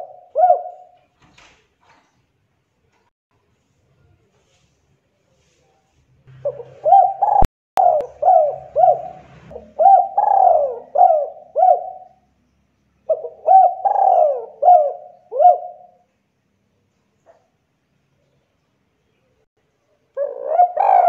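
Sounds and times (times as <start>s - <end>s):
dove cooing: 0.0s - 1.0s, 6.3s - 12.2s, 13.1s - 16.0s, 20.2s - 21.0s.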